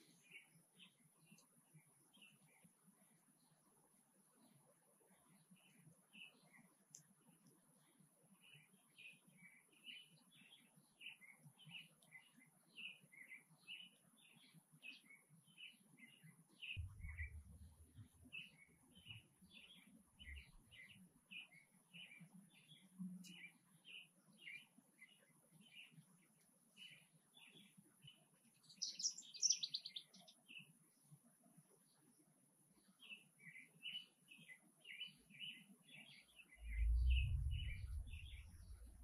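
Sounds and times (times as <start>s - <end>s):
faint bird chirping: 0.0s - 39.0s
low rumble: 16.8s - 17.9s, 36.6s - 39.0s.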